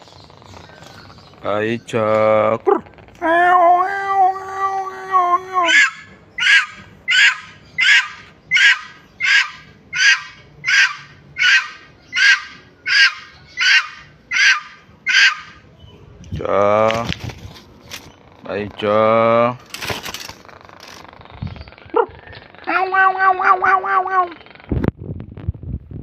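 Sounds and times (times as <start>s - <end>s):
bird calling: 0.0s - 16.1s.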